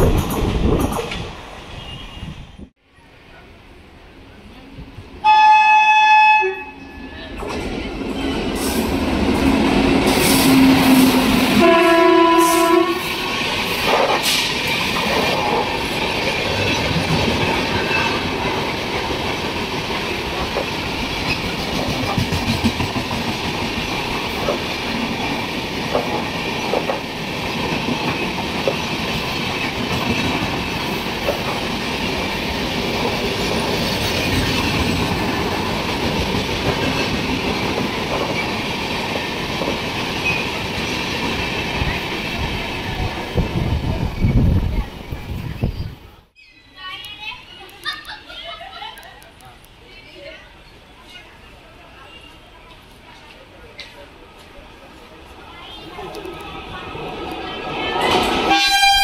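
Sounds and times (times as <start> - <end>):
passenger coaches rumbling and clacking: 0.0 - 5.3, 6.8 - 59.0
locomotive horn: 5.2 - 7.1, 10.0 - 13.2, 58.4 - 59.0.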